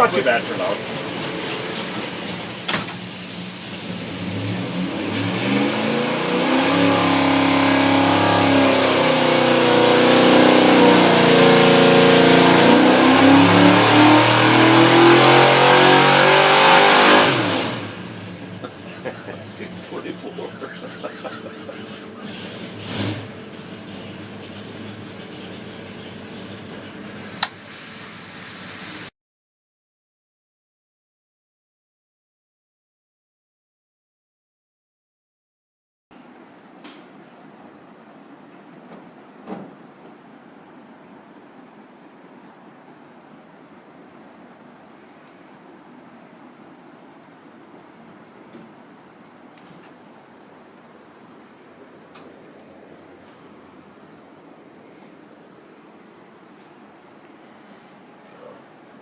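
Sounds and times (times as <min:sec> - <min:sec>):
race engine revving: 0:03.8 - 0:26.6.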